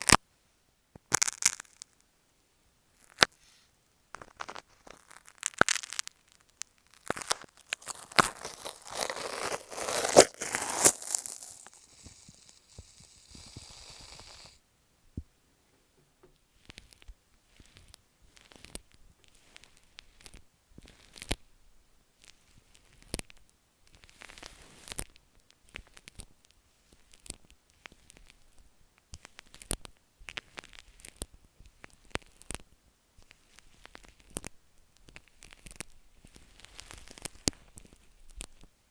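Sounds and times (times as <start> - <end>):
crackling microphone handling noise: 4.1 - 15.4
aerosol can hissing: 11.9 - 14.6.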